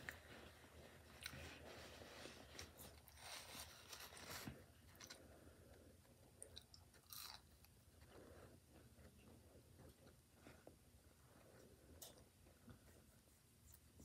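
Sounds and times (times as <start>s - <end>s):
person chewing food: 1.1s - 4.0s, 4.9s - 10.2s.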